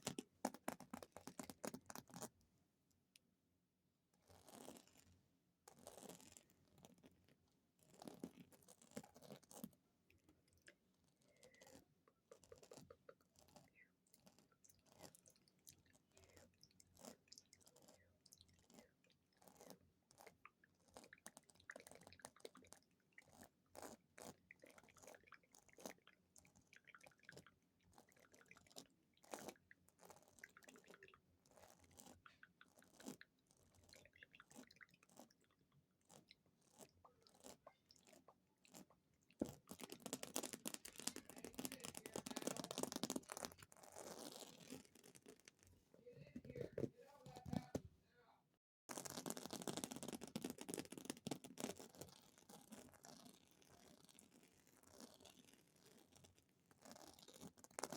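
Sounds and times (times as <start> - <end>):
fast tapping on small objects: 36.1 - 43.7, 48.9 - 52.0.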